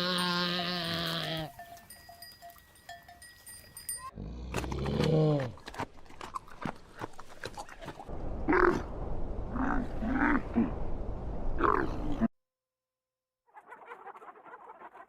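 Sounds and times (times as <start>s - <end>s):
animal giving low calls: 8.5s - 8.9s.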